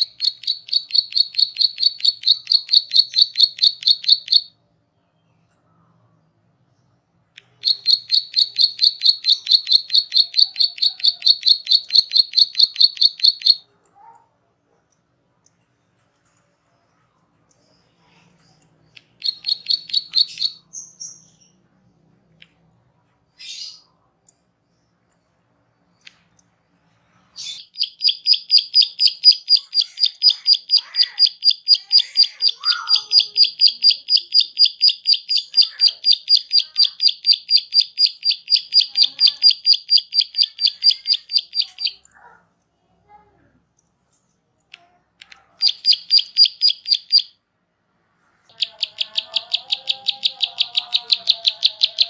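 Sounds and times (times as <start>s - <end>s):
faint bird chirps: 0.0s - 14.2s, 16.3s - 42.1s, 45.4s - 47.4s, 48.4s - 52.0s
songbird trilling: 7.5s - 13.6s, 19.0s - 21.2s, 27.5s - 42.1s, 48.5s - 52.0s.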